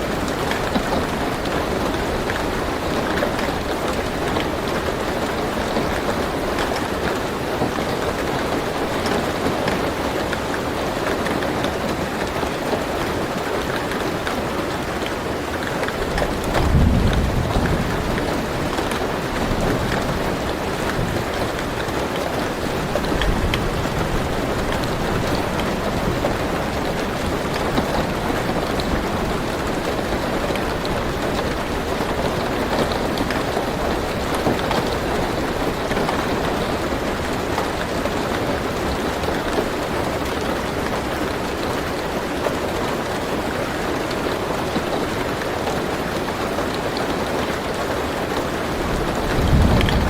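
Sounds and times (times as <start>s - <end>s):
rain on a car roof: 0.0s - 50.0s
raindrop ticks: 19.6s - 41.6s, 49.1s - 50.0s.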